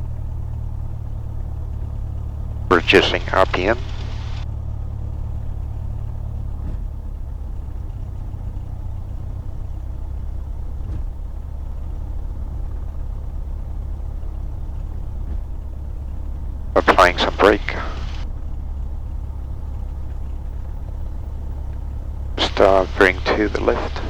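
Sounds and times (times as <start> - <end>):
airplane engine droning: 0.0 - 24.0
faint clicks: 2.7 - 4.4, 16.8 - 18.2.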